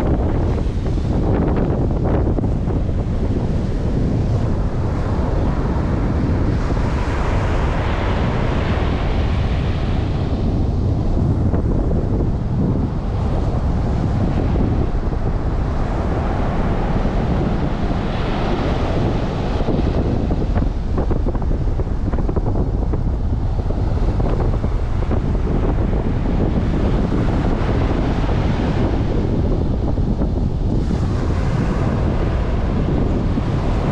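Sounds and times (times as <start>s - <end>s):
surf washing on beach: 0.0s - 33.9s
wind buffeting microphone: 0.0s - 33.9s.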